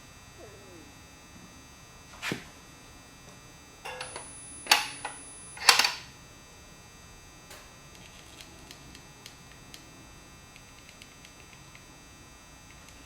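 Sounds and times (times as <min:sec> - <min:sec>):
mechanical clicks and clunks: 0:03.9 - 0:06.1.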